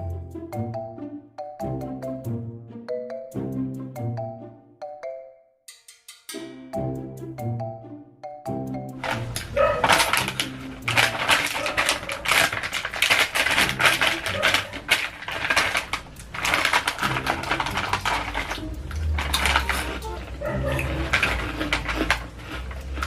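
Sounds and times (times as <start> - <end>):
chewing crunchy chips: 9.0 - 23.0.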